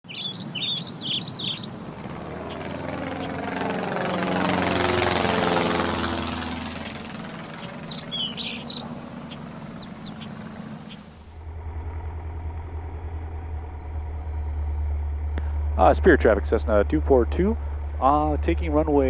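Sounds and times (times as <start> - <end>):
birds chirping: 0.0 - 11.4, 15.4 - 19.0
propeller aircraft flying overhead: 0.0 - 19.0.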